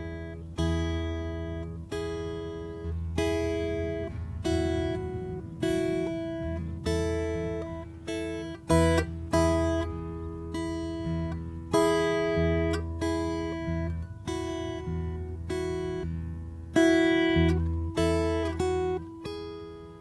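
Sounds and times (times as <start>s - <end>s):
solo acoustic guitar: 0.0s - 20.0s.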